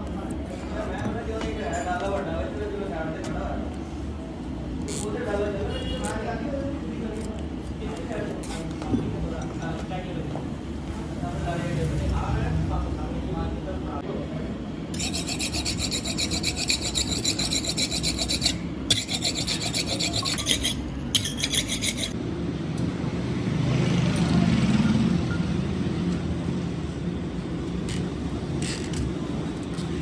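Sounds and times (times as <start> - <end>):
tyre rubber being rasped: 15.0 - 22.2.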